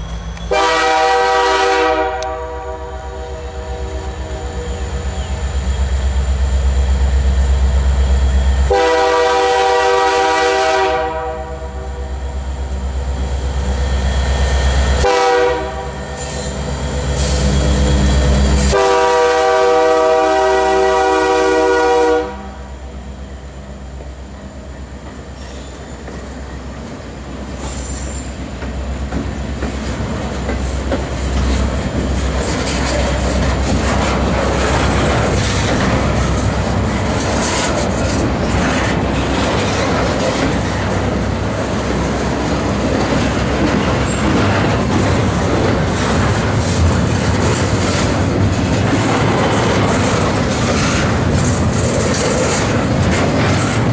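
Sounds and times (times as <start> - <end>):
diesel locomotive engine rumbling: 0.0 - 53.9
train air horn: 0.4 - 5.0, 8.6 - 12.0, 15.0 - 16.6, 18.7 - 22.7
train wheels clattering on rails: 23.9 - 53.9.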